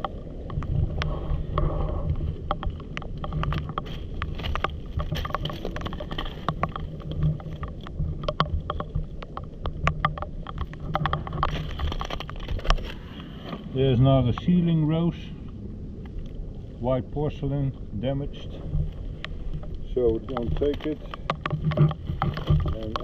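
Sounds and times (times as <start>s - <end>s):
wind rumble on microphone: 0.0s - 23.0s
stones and pottery clicking together: 2.4s - 13.0s, 19.2s - 23.0s.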